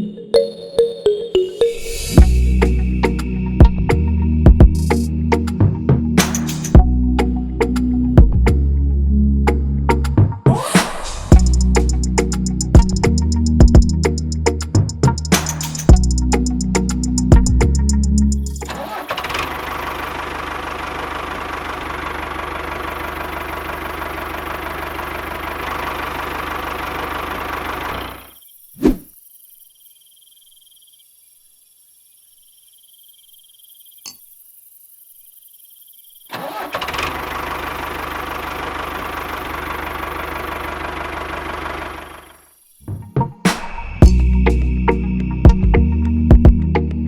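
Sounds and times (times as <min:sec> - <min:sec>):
sharp click: 0:06.2 - 0:06.8
water pump engine running: 0:18.6 - 0:28.3, 0:36.4 - 0:42.4.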